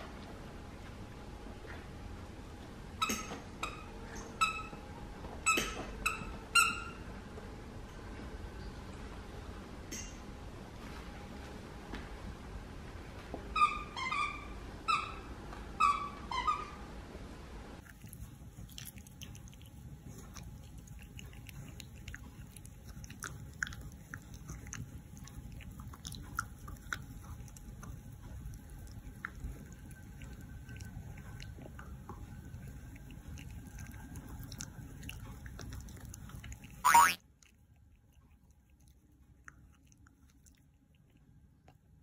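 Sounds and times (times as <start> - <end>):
mouth clicks and smacks: 17.8 - 41.8
puppy chewing: 17.8 - 42.0
high squeaks: 36.8 - 37.2.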